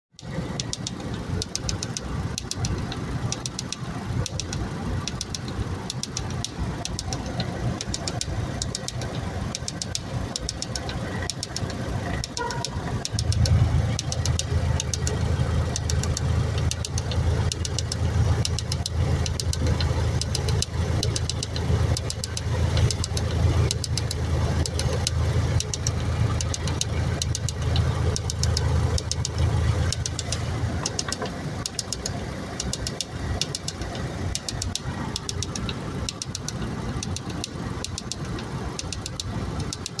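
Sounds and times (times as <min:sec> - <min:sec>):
car engine ticking knock: 0:00.2 - 0:40.0
deep low hum: 0:02.2 - 0:39.7.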